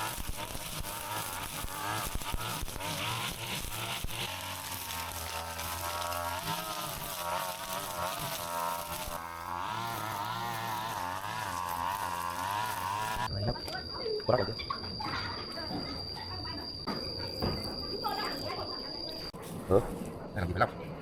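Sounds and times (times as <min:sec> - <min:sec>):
brush cutter engine whining: 0:00.0 - 0:13.8.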